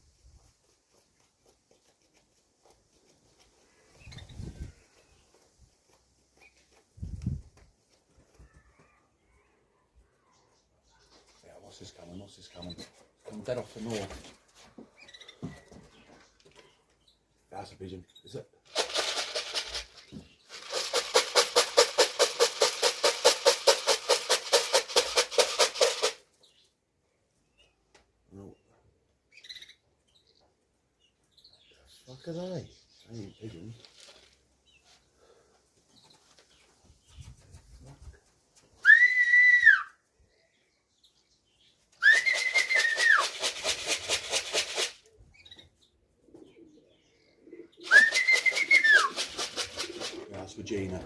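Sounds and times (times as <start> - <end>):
rapid rattle: 18.6 - 26.2, 42.7 - 45.0, 48.3 - 50.2
pigeon wings flapping: 18.7 - 26.2, 42.0 - 45.1, 47.8 - 51.0.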